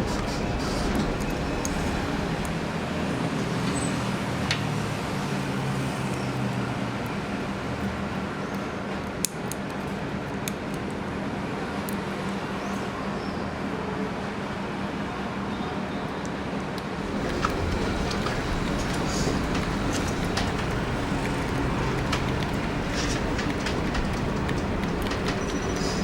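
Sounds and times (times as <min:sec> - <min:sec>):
sharp small clicks: 0:05.8 - 0:11.0
background hum and hiss: 0:16.4 - 0:26.0.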